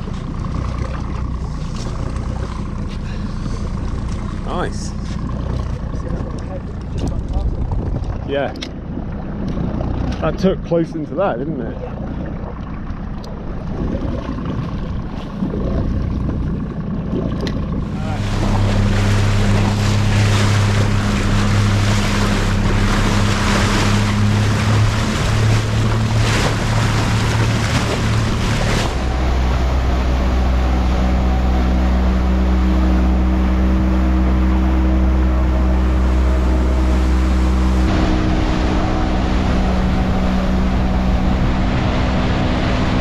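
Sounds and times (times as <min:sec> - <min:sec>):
motorboat engine running: 0:00.0 - 0:43.0
water rushing past hull: 0:00.0 - 0:43.0
wind noise: 0:06.9 - 0:08.5, 0:13.5 - 0:32.7.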